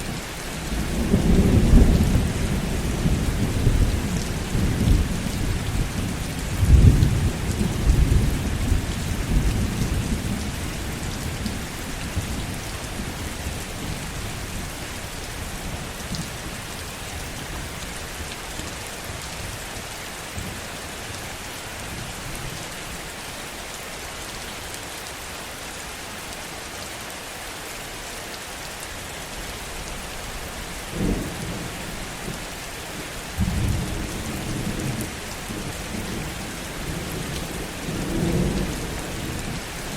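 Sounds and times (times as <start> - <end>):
heavy rain: 0.0 - 39.9
low thunder rumble: 0.7 - 13.6.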